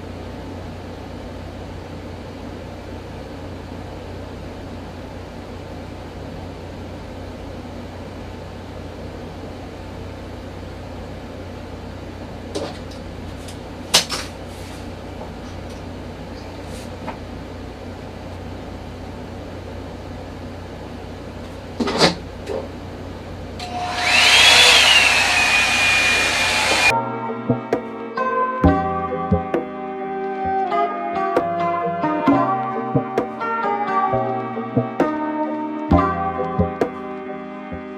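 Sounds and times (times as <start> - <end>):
hair dryer brush humming: 23.6 - 26.9
loud rushing air with whine: 23.6 - 26.9.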